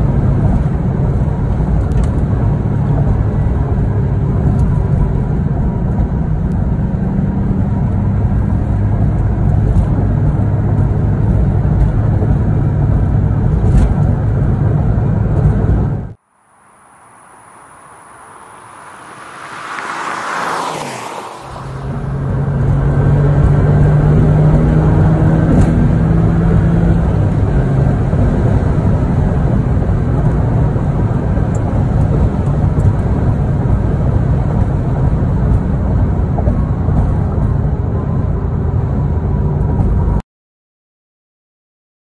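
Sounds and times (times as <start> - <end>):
car engine drone: 0.0 - 40.2
tyre and road noise: 0.0 - 40.2
car passing by: 16.3 - 37.4.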